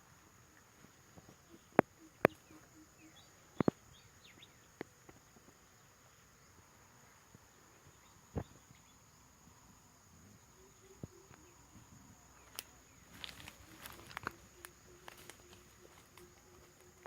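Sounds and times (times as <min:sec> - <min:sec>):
faint bird chirps: 0:00.0 - 0:04.9, 0:05.6 - 0:17.0
high-pitched insect drone: 0:10.3 - 0:17.0.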